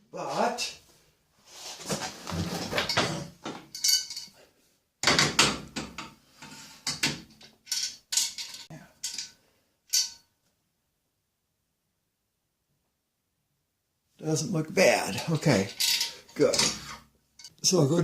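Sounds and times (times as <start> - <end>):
metal tools clinking and clattering: 2.7 - 4.4, 6.4 - 10.3, 15.3 - 17.5.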